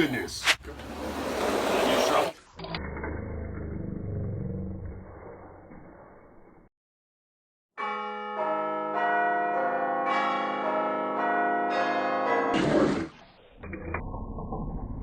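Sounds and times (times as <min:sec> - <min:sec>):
bells ringing: 0:07.8 - 0:12.5.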